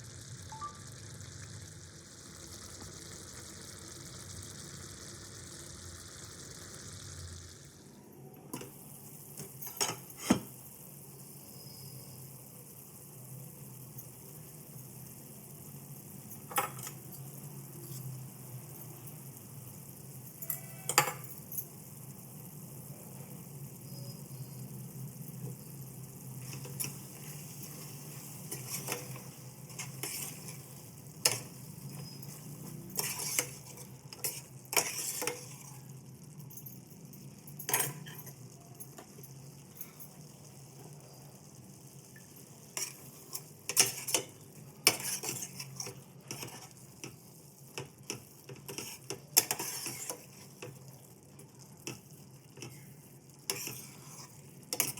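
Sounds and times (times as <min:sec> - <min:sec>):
metal spoon scraping in pan: 0:16.6 - 0:18.4, 0:20.4 - 0:21.2, 0:26.3 - 0:35.9, 0:37.7 - 0:38.5, 0:42.7 - 0:47.2, 0:47.8 - 0:50.7, 0:53.5 - 0:54.9.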